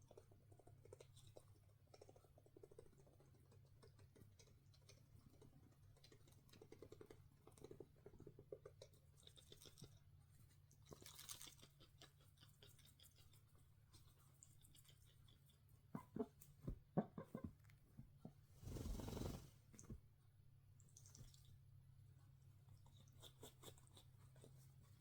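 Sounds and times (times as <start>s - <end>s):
soft rustles: 18.4s - 20.2s.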